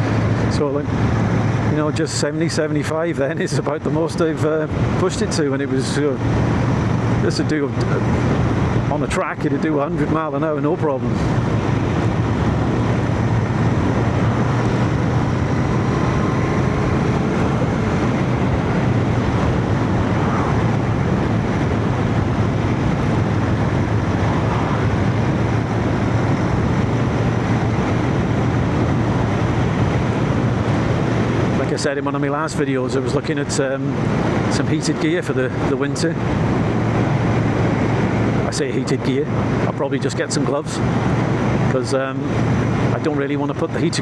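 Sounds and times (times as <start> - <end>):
motorcycle engine cruising: 0.0 - 2.2, 6.2 - 31.8
road noise: 0.0 - 44.0
wind noise: 0.0 - 44.0.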